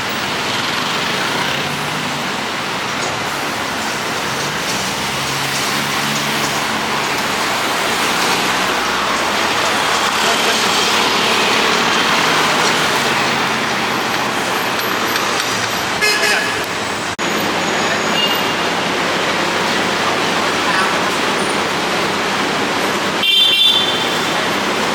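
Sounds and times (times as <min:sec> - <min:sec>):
city road traffic: 0:00.0 - 0:24.9
car horn toot: 0:16.0 - 0:16.6, 0:23.2 - 0:24.4.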